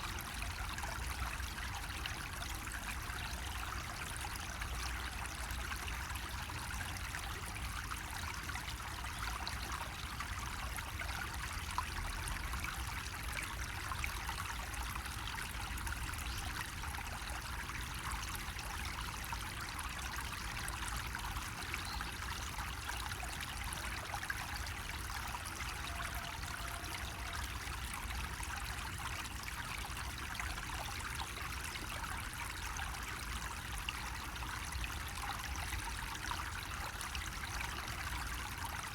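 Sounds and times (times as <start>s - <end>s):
water trickling from spout: 0.0s - 38.9s.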